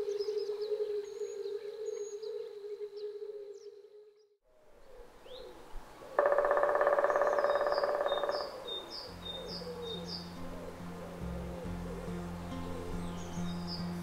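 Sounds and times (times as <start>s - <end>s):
bird high chirps: 6.2s - 10.9s
low steady music tones: 7.9s - 14.0s.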